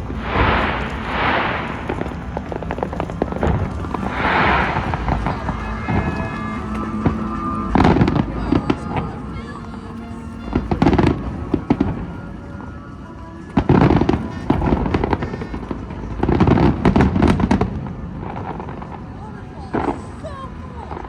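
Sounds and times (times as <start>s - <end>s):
fireworks bangs and crackles: 0.0s - 12.1s, 13.6s - 20.3s
low rumble: 0.0s - 12.6s.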